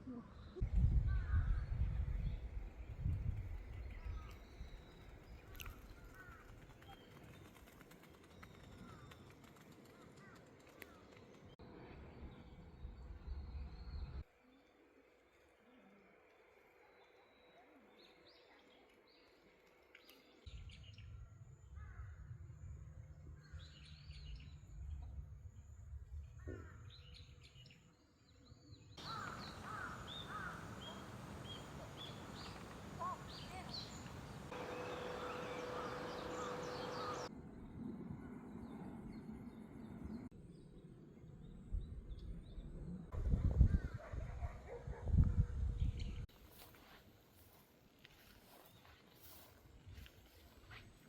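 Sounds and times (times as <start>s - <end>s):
birds chirping and calling: 29.0s - 37.3s.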